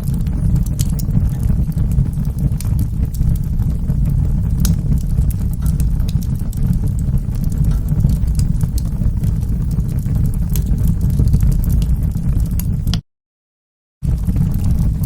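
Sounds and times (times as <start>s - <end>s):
wood fire crackling and popping: 0.0s - 13.0s, 14.0s - 15.0s.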